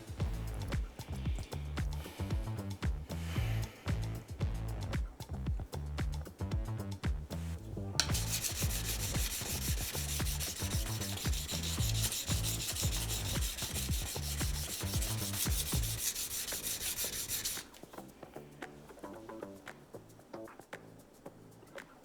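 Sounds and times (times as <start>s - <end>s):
knife scraping on whetstone: 8.0s - 17.8s.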